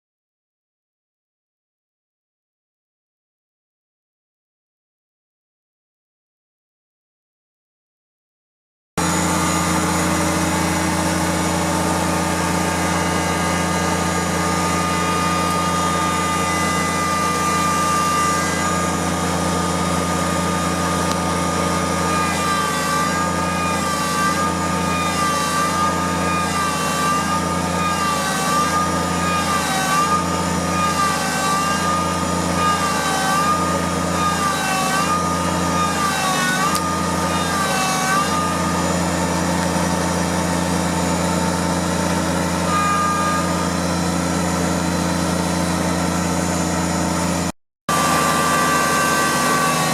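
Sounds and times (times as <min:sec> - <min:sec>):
tractor diesel engine running: 0:09.0 - 0:22.1, 0:43.6 - 0:49.8.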